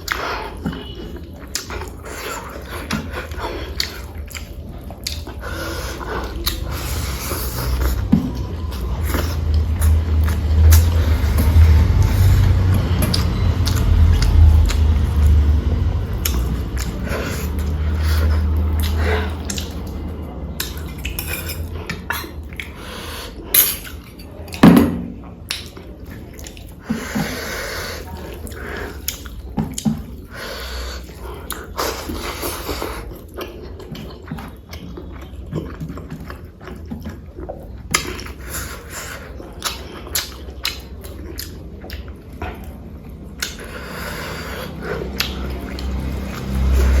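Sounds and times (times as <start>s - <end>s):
chewing: 0.0s - 24.6s, 25.2s - 47.0s
dishes and cutlery clinking: 20.7s - 22.3s.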